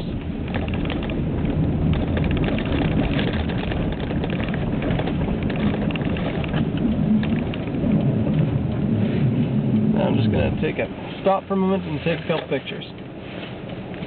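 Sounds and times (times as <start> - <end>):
car engine and road noise: 0.0 - 14.0
small crackles: 0.0 - 14.0.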